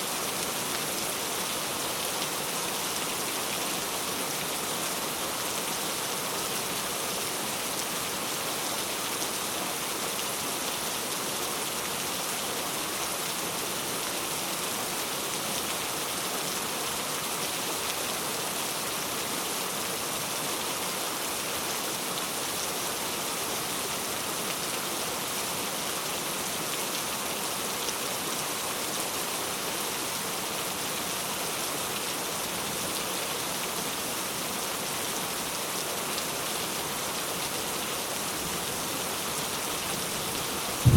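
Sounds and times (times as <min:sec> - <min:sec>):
rain pattering on surfaces: 0:31.9 - 0:40.9.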